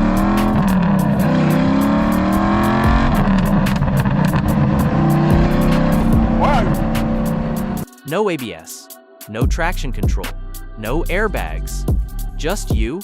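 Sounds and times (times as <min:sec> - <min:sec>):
sports car engine accelerating: 0:00.0 - 0:07.9.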